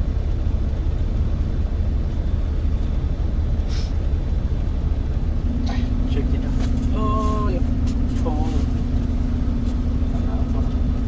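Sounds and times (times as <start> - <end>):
truck rumbling on road: 0.0 - 11.0
brief hiss: 3.7 - 4.0.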